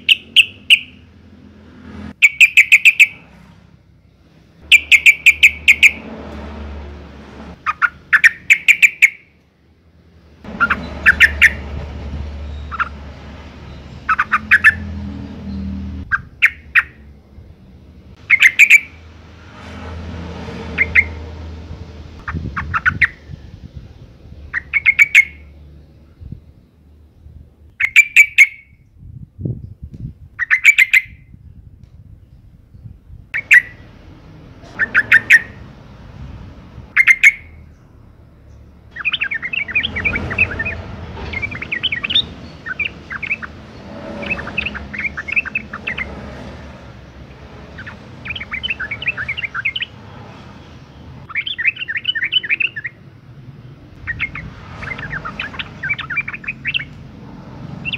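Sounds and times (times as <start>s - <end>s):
bird chattering calls: 0.0s - 1.0s, 2.2s - 3.3s, 4.6s - 6.1s, 7.6s - 9.3s, 10.5s - 11.7s, 12.5s - 13.1s, 14.0s - 14.9s, 16.0s - 17.0s, 18.2s - 19.0s, 20.8s - 21.2s, 22.2s - 23.3s, 24.5s - 25.5s, 27.8s - 28.7s, 30.4s - 31.2s, 33.4s - 33.9s, 34.6s - 35.7s, 36.9s - 37.7s, 38.9s - 46.4s, 47.7s - 50.1s, 51.2s - 53.0s, 54.0s - 57.0s.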